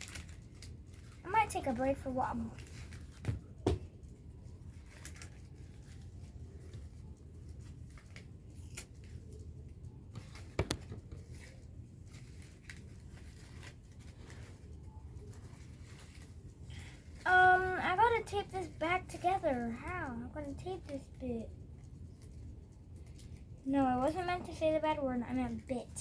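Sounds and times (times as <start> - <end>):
paper rustling: 4.5 - 20.0.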